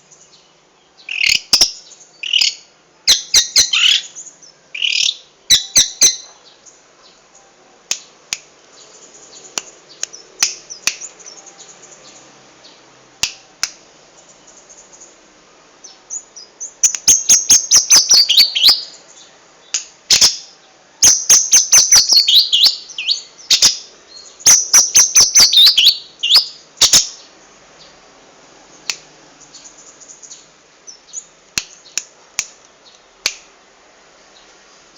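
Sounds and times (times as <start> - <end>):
bird singing rapid mimicked song: 0.0 - 7.3, 7.9 - 15.2, 15.8 - 28.0
soft bird chirps: 14.1 - 28.0.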